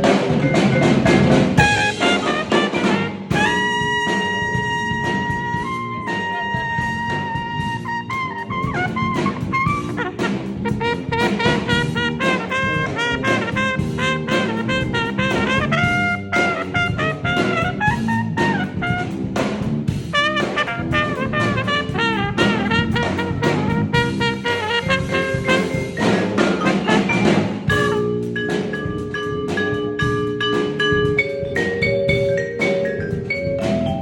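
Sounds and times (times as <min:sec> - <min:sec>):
backing instruments: 0:00.0 - 0:34.0
drum kit: 0:00.0 - 0:34.0
brass horn solo: 0:01.6 - 0:28.2.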